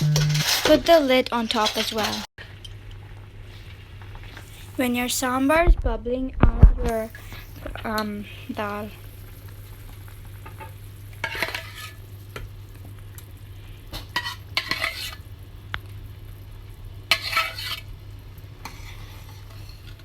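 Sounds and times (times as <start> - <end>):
low hum: 0.0 - 0.6
spoon scraping a pot: 0.0 - 0.7, 11.2 - 12.0, 14.0 - 15.2, 17.1 - 17.9, 18.6 - 20.0.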